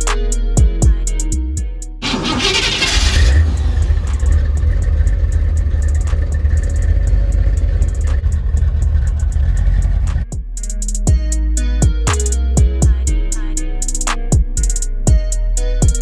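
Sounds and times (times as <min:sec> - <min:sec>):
car engine exhaust rumble: 0:02.0 - 0:10.4.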